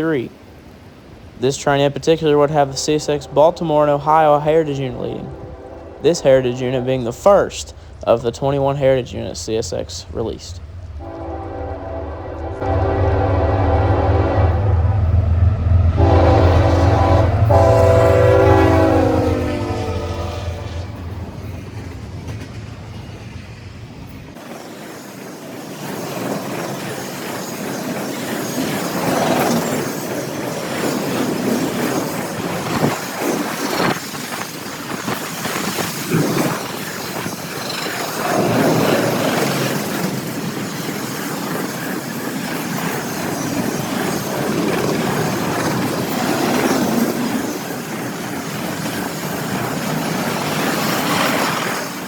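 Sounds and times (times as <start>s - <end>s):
freight train wheels clattering: 14.9s - 24.4s.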